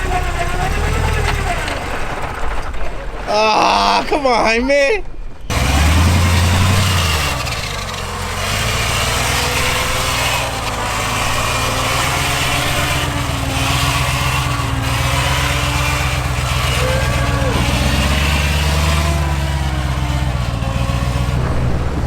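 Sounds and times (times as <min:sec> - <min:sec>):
off-road vehicle engine droning: 0:00.0 - 0:03.3, 0:05.4 - 0:22.0.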